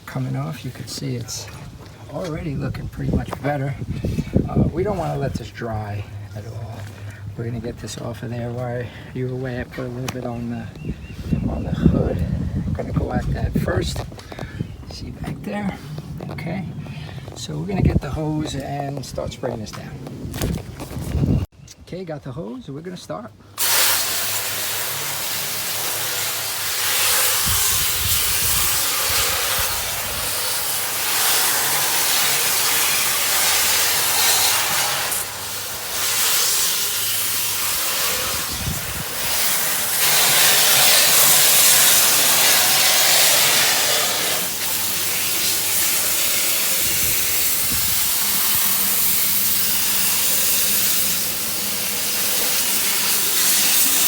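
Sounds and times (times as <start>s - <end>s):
hose spraying water: 23.6s - 54.0s.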